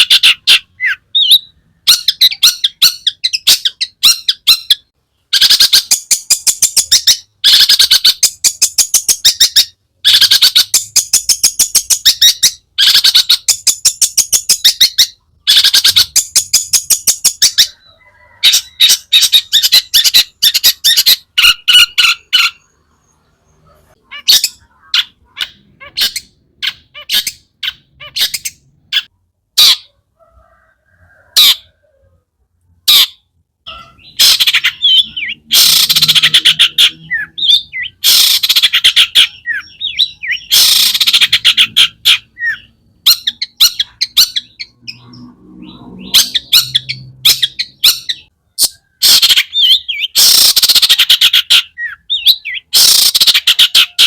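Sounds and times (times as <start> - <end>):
bird chattering song: 0.0 - 31.8, 32.9 - 54.0.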